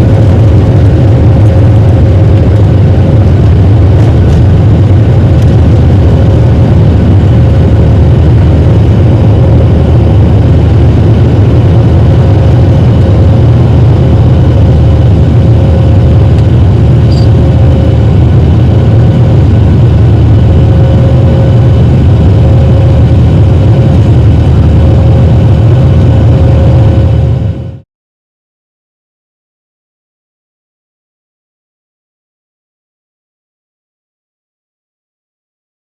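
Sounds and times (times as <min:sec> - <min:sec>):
constant hum: 0:00.0 - 0:27.8
jet cabin low rumble: 0:00.0 - 0:27.8.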